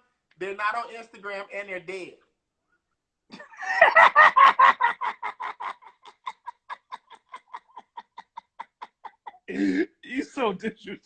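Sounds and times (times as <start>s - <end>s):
man laughing hard: 3.3s - 9.4s.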